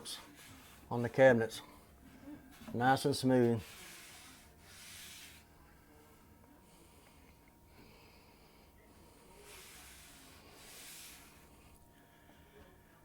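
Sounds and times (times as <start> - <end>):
soft hisses: 2.5 - 6.0, 9.0 - 11.8.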